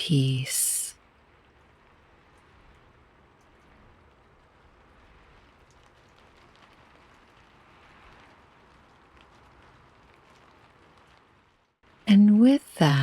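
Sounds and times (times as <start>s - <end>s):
faint rain: 0.0s - 13.0s.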